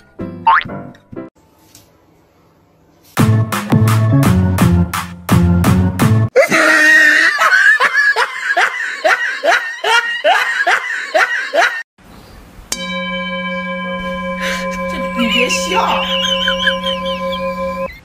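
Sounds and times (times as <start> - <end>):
beat-driven music: 3.2 - 6.3, 12.7 - 17.9
person laughing hard: 6.4 - 11.8, 16.0 - 17.6
steady electronic tone: 12.7 - 17.9.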